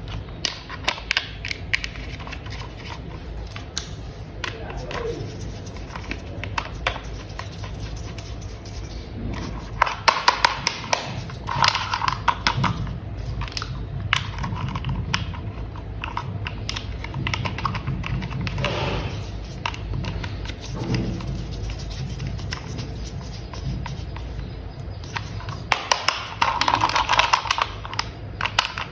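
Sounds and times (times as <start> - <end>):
plastic toy parts clicking: 25.0 - 28.9.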